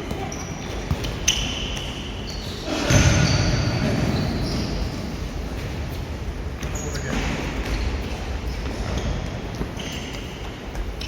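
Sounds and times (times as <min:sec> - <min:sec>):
ball kicked and bouncing: 0:00.0 - 0:01.9
shoes squeaking on court floor: 0:00.0 - 0:11.0.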